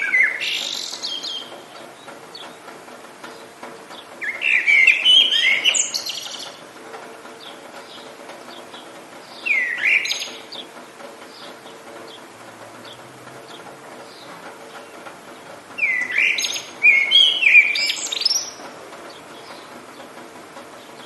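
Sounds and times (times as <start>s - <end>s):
songbird warbling: 0.0s - 2.6s, 4.0s - 6.6s, 7.4s - 10.7s, 15.8s - 18.6s
rain hiss: 0.0s - 21.0s.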